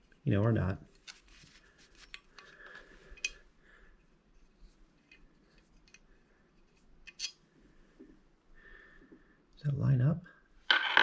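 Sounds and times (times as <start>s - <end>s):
metal latch parts clicking: 7.0s - 7.4s.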